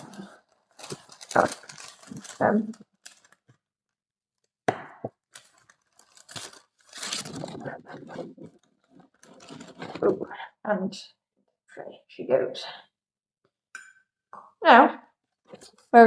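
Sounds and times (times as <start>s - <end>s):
parchment paper crinkling: 0.0s - 3.6s, 5.2s - 10.2s.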